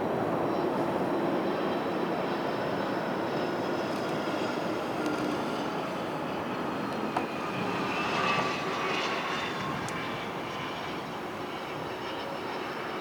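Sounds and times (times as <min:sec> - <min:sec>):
jet engines rushing with whine: 0:00.0 - 0:13.0.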